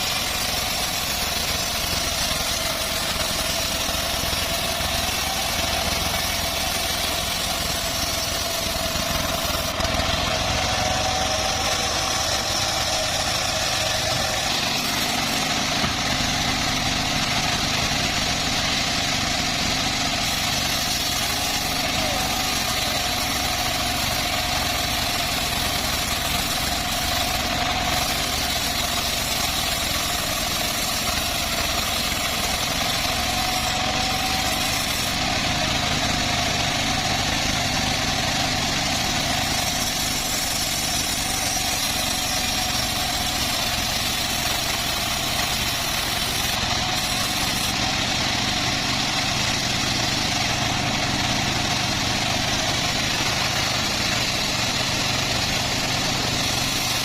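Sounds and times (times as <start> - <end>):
band sawmill running: 0.0 - 57.0.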